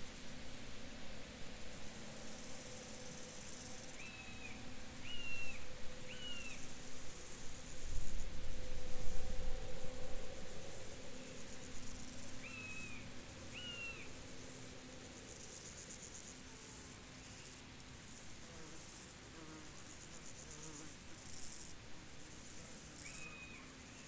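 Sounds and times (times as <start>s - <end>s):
crickets chirping: 1.2s - 18.2s.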